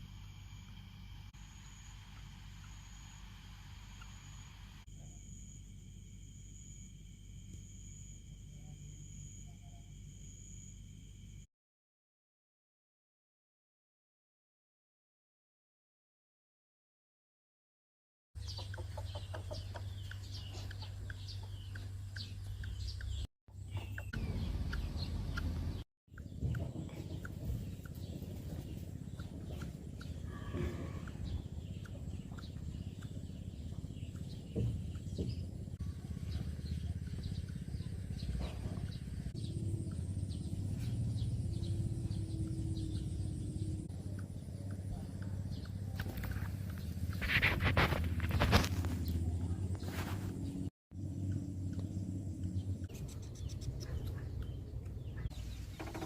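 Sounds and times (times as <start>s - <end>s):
faint steady hum: 0.0s - 11.5s
birds chirping: 18.4s - 56.0s
steady low rumble: 18.4s - 56.0s.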